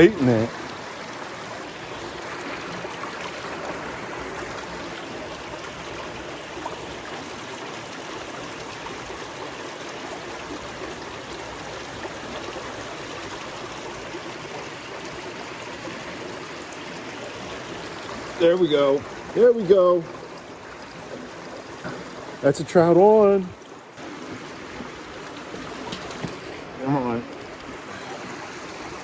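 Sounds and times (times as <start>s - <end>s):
creek water rushing: 0.0s - 29.0s.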